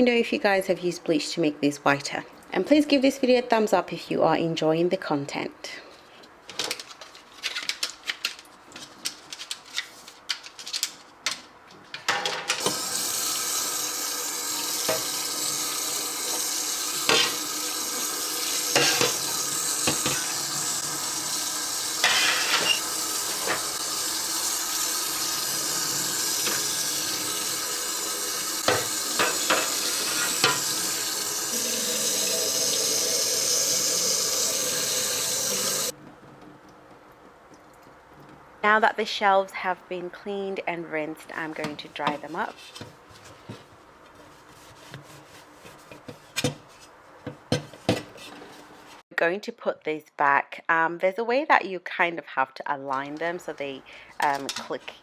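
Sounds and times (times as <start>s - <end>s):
kitchen tap running: 12.6s - 35.9s.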